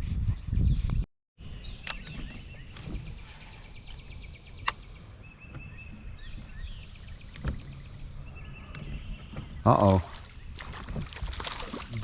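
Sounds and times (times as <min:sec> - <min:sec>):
low steady wind rumble: 0:00.0 - 0:12.0
small birds chirping: 0:00.6 - 0:12.0
sharp click: 0:01.8 - 0:02.1.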